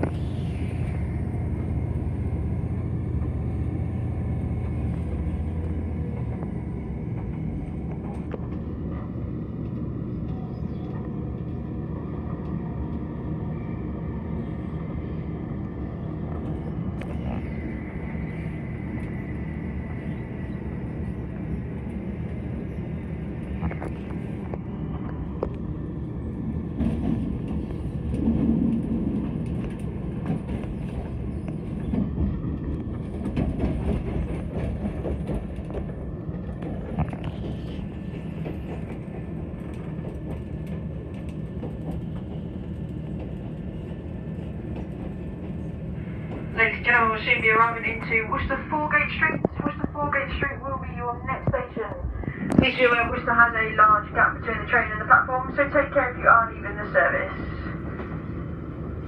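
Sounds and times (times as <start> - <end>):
train engine and wheels rumbling: 0.0 - 59.0
train bumps: 26.6 - 43.6.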